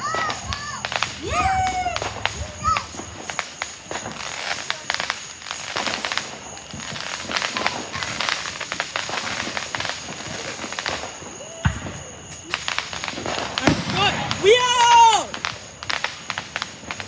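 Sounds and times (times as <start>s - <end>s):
firework crackling pops: 0.0s - 17.0s
loud firework pop: 10.9s - 14.3s.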